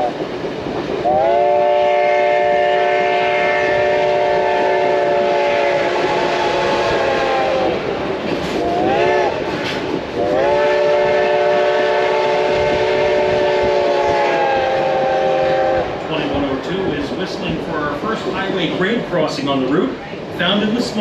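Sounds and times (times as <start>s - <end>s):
train running noise: 0.0s - 21.0s
steam locomotive chime whistle: 1.1s - 7.7s.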